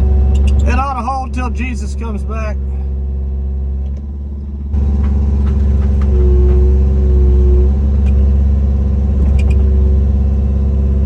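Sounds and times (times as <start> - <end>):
diesel engine running: 0.0 - 11.0
high whine: 5.6 - 8.4.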